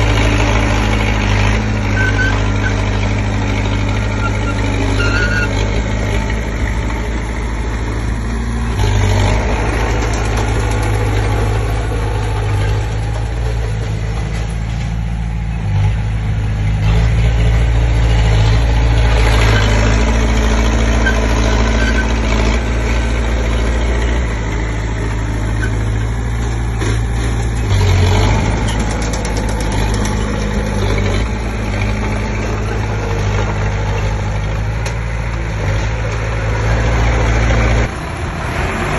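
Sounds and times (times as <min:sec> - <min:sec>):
bulldozer diesel engine under load: 0:00.0 - 0:38.9.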